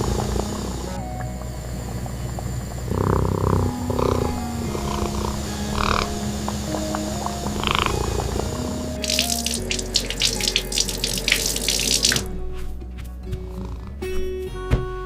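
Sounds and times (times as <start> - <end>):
soft background music: 0.0 - 15.0
tap water splashing into sink: 9.0 - 12.3.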